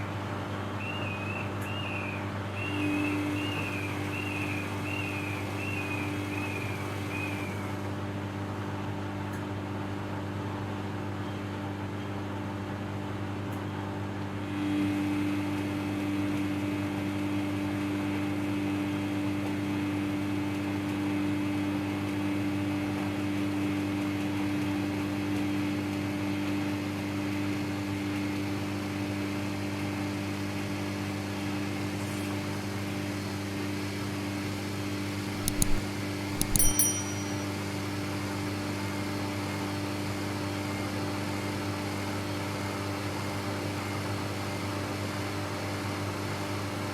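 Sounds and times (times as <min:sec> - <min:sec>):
sharp clicks: 0:35.4 - 0:37.5.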